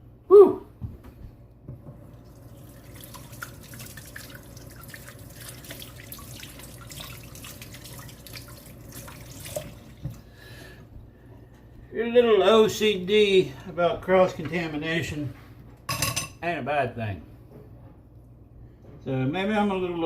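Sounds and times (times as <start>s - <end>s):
tap water running into sink: 1.8s - 10.3s
hands rinsing with splashes: 2.0s - 10.6s.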